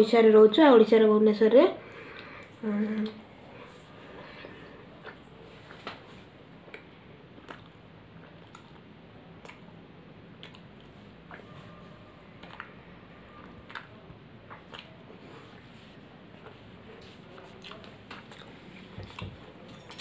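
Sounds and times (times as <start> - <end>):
low room hum: 0.0 - 20.0
person chewing with wet smacks: 6.4 - 19.6.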